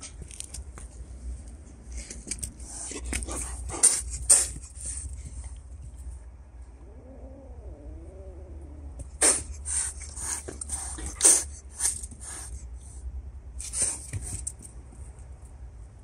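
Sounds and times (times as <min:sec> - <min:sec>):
cat hissing: 0:02.6 - 0:05.1, 0:06.9 - 0:12.7, 0:13.6 - 0:14.5.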